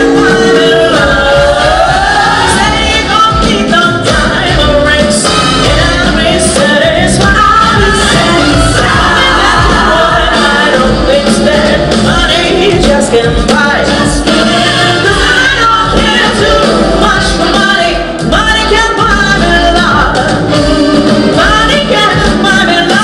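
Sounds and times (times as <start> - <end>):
live pop-rock band: 0.0 - 23.0
voices singing: 0.0 - 23.0.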